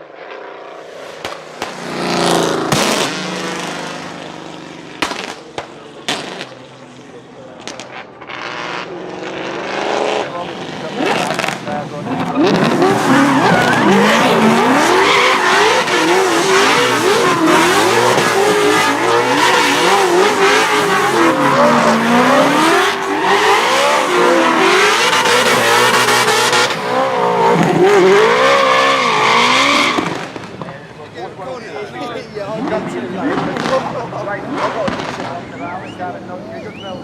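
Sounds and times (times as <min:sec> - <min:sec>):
car engine revving: 0:00.2 - 0:31.3, 0:32.5 - 0:36.5
tyres squealing: 0:12.2 - 0:30.2.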